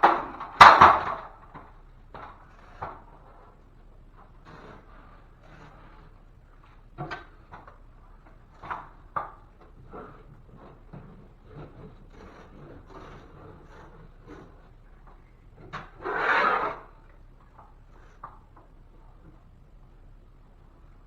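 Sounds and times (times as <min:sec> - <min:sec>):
scraping on drywall: 0:00.0 - 0:19.6
loud scrape or rip: 0:04.4 - 0:06.2, 0:09.8 - 0:17.1.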